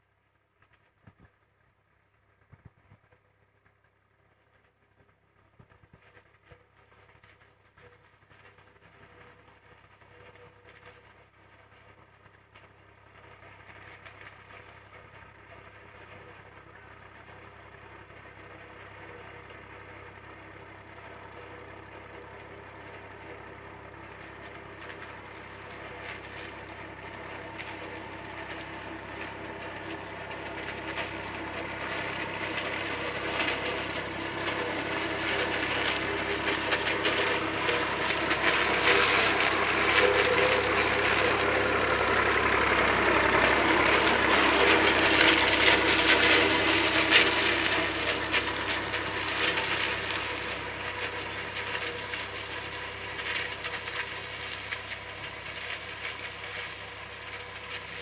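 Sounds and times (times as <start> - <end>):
tractor diesel engine under load: 3.3 - 58.0
forage harvester rattling chopping: 21.0 - 58.0.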